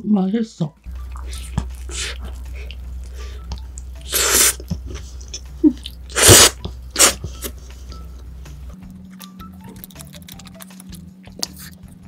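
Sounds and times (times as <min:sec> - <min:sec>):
wet chewing clicks: 0:00.9 - 0:07.3, 0:08.8 - 0:12.0.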